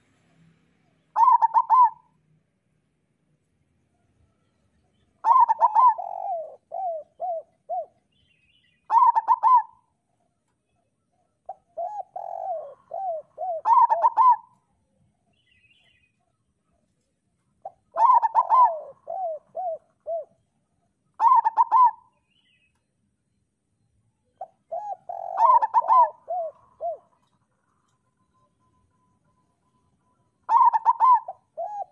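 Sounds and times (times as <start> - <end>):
dove cooing: 1.1 - 2.2, 5.2 - 8.2, 8.9 - 10.0, 11.4 - 14.7, 17.6 - 20.4, 21.2 - 22.2, 24.4 - 27.4, 30.4 - 31.9.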